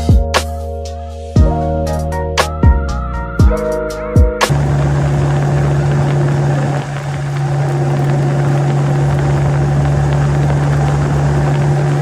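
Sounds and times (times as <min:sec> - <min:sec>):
engine running steadily: 0:04.5 - 0:12.0
rushing air and road noise: 0:04.5 - 0:12.0.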